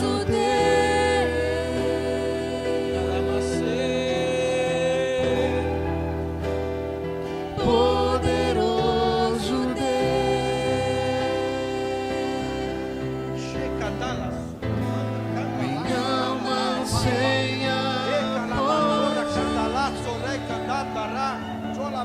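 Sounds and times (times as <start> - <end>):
person singing: 0.0 - 6.0, 7.5 - 13.5, 15.5 - 20.8
slow gospel worship music: 0.0 - 22.0.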